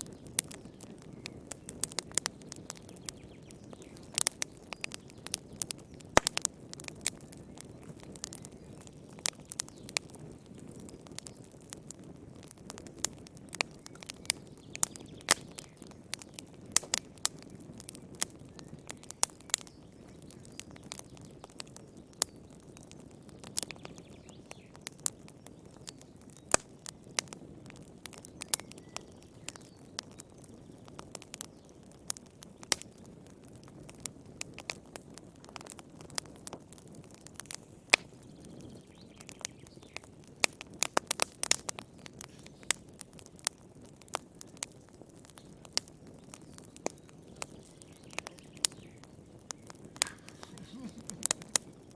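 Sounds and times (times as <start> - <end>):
campfire crackling and popping: 0.0 - 51.9.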